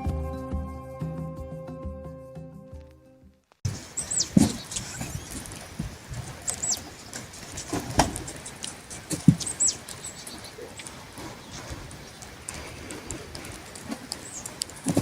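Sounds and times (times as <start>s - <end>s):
small birds chirping: 3.6s - 15.0s
knocks and thumps: 3.7s - 6.3s, 7.6s - 9.5s.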